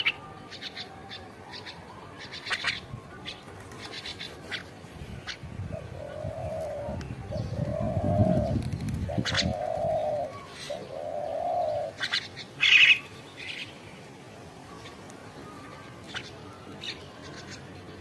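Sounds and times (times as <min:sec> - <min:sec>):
dove cooing: 0:05.3 - 0:13.1.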